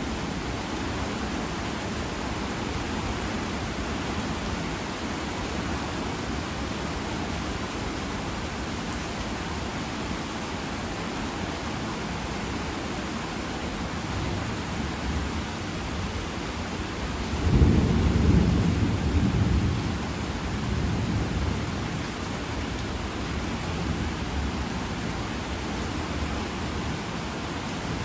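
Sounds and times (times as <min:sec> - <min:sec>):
heavy rain: 0:00.0 - 0:28.0
thunder rumble: 0:17.3 - 0:22.0.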